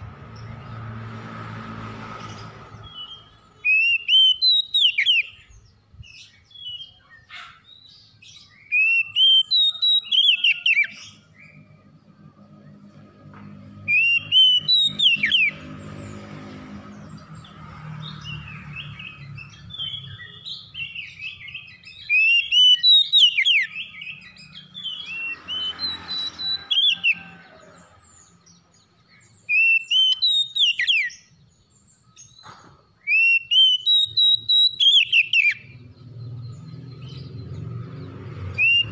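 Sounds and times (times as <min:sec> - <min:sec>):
bird whistled song: 0:02.8 - 0:11.8, 0:13.8 - 0:15.8, 0:17.0 - 0:27.4, 0:29.1 - 0:38.9.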